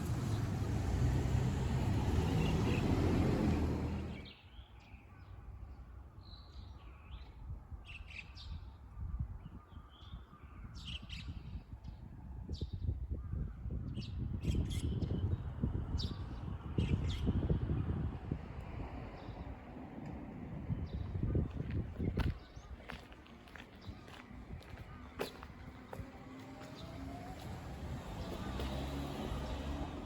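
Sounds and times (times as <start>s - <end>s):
birds chirping: 0.0s - 4.4s.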